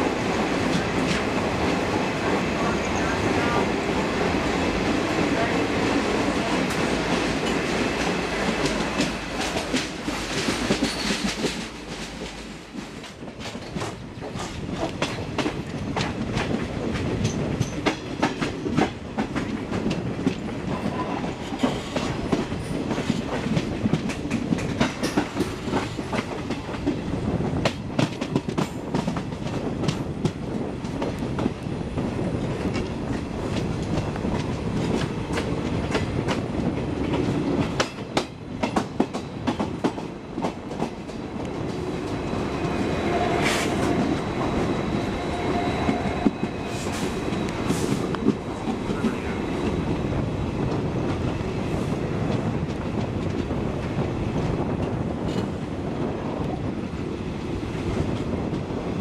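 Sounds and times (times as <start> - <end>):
train rumble in tunnel: 0.0 - 59.0
wheels clicking over rail joints: 21.2 - 27.0.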